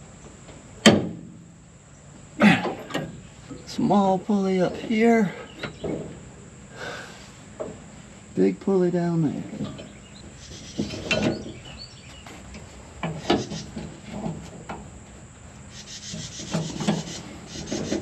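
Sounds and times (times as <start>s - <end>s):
scraping and rubbing on a belt: 16.2s - 18.0s.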